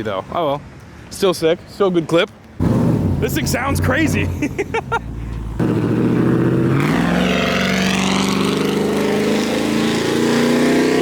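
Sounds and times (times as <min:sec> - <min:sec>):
car engine accelerating hard: 0:02.6 - 0:11.0.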